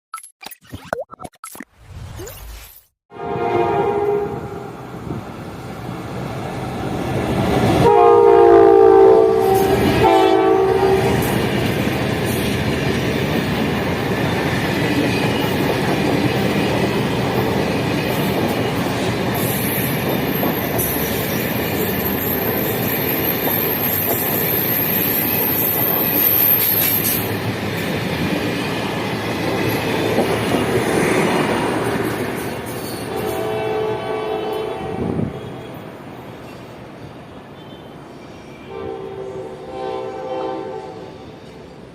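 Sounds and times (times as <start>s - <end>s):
locomotive horn blasts: 3.1s - 4.7s, 7.8s - 11.2s, 33.1s - 35.6s, 38.7s - 41.2s
train rumbling past: 3.2s - 41.9s.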